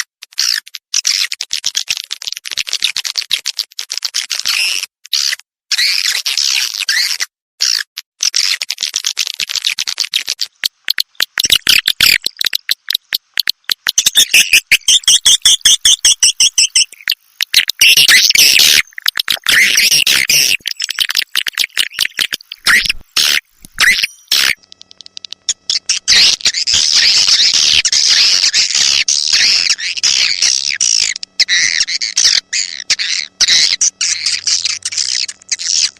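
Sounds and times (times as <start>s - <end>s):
swiftlet chattering: 10.8s - 35.9s
swiftlet chirps and clicking: 10.8s - 35.9s.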